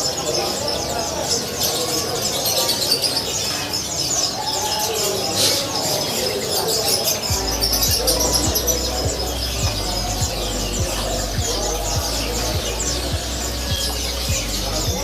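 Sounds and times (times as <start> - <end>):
songbirds chirping and twittering: 0.0 - 15.0.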